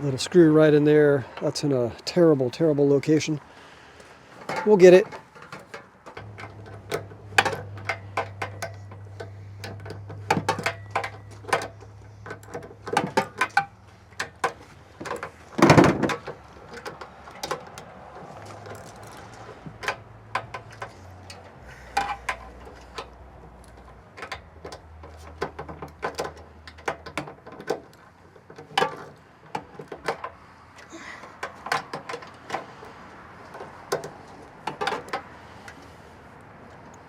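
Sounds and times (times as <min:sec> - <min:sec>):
low steady hum: 0:06.2 - 0:14.5.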